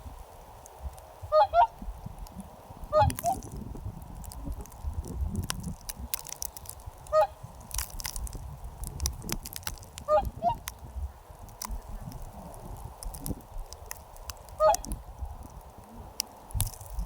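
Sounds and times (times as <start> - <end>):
geese honking: 1.3 - 1.8, 2.9 - 3.4, 7.1 - 7.5, 10.1 - 10.7, 14.6 - 14.9
small clicks: 2.2 - 10.8, 11.4 - 17.0.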